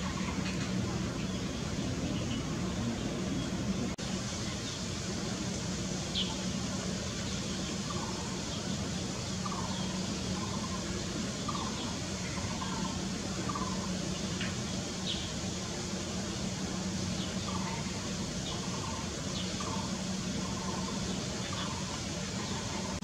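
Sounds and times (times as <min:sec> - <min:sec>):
constant low hum: 0:00.0 - 0:23.0
faint bird chirps: 0:06.1 - 0:15.4, 0:17.0 - 0:23.0.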